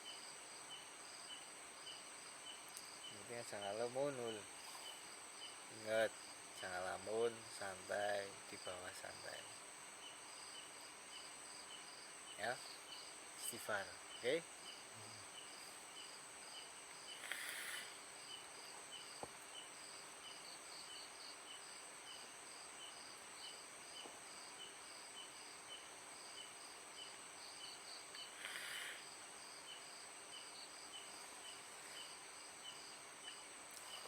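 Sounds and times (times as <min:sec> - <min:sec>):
night insects calling: 0:00.0 - 0:34.0
hiss bursts: 0:17.1 - 0:18.1, 0:28.3 - 0:29.1.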